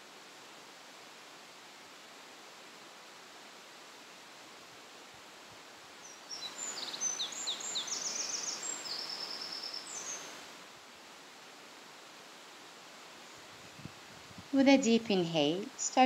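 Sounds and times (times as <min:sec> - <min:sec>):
steady outdoor hiss: 0:00.0 - 0:16.0
songbird chirps and trills: 0:06.0 - 0:10.4, 0:14.6 - 0:16.0.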